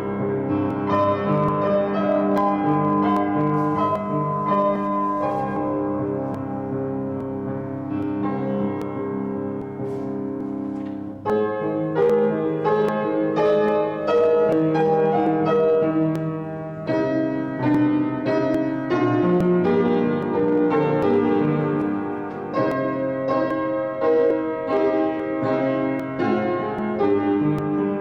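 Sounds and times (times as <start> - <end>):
slow solo piano piece: 0.0 - 28.0.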